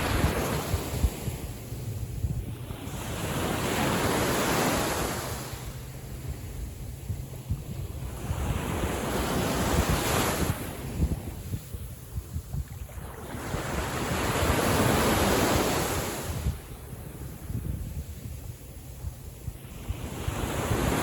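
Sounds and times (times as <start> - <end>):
sea waves washing in: 0.0 - 21.0
wind rumble on microphone: 0.0 - 21.0.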